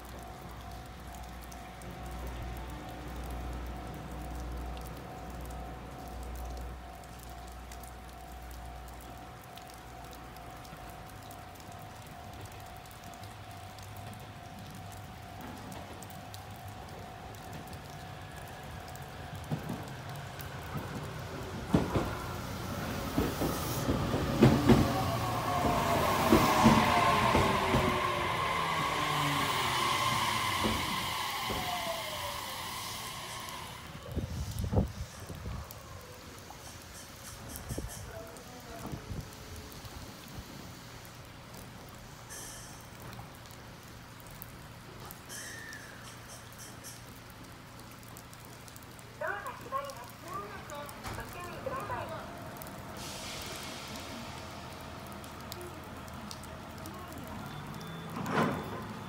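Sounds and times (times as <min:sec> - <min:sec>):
rain falling: 0:00.0 - 0:59.0
train wheels knocking over rail joints: 0:23.0 - 0:28.6
bursts of hiss: 0:23.0 - 0:35.3, 0:52.9 - 0:55.0
train motor whine falling: 0:23.1 - 0:34.0.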